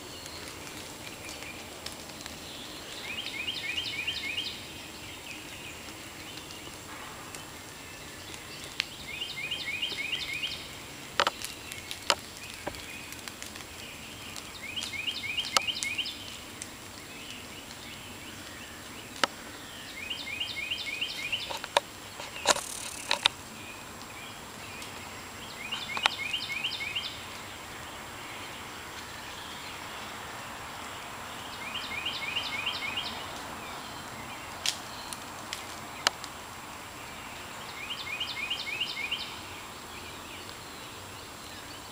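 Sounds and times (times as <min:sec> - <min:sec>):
songbird singing: 0:00.0 - 0:41.9
woodland background noise: 0:00.0 - 0:41.9
brief rustle: 0:21.4 - 0:23.3
sharp ticks: 0:21.4 - 0:23.4.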